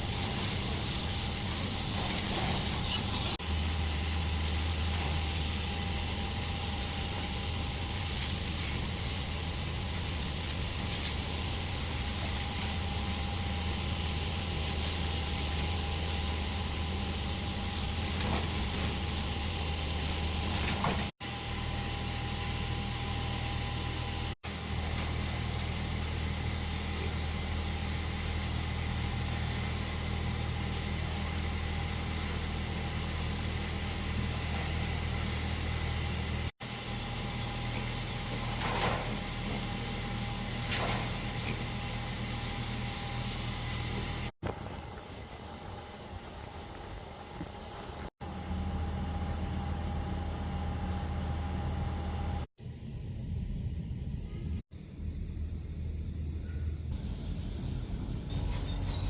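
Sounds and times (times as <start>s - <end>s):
motor humming: 0.0s - 45.4s.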